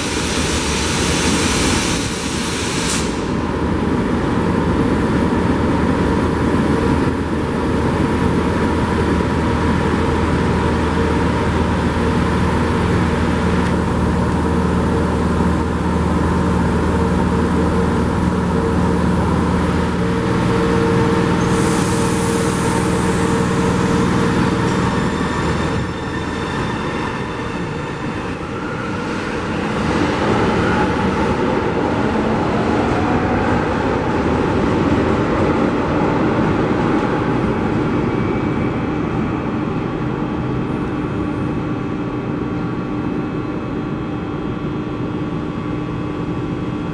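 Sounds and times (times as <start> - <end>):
brief high hiss: 0.0 - 3.4
train wheels rumbling on track: 0.0 - 43.2.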